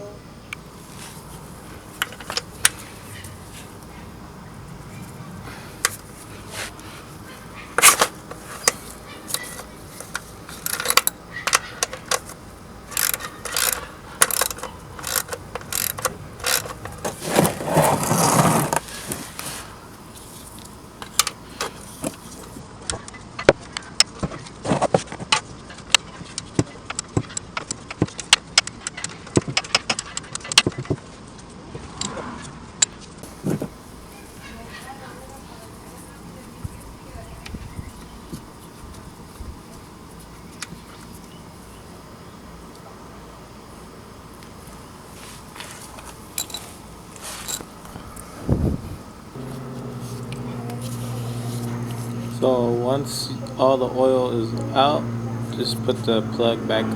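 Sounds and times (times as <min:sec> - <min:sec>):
ratchet clicking: 0:07.8 - 0:22.6.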